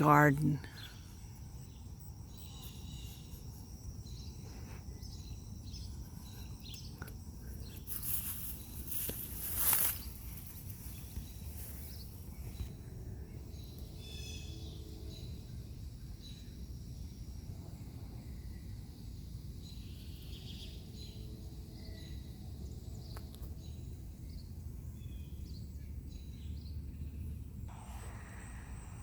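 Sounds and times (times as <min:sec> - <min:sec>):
insects trilling: 0:00.0 - 0:22.5
bird chirps: 0:00.7 - 0:12.8
low rumble: 0:27.6 - 0:29.0.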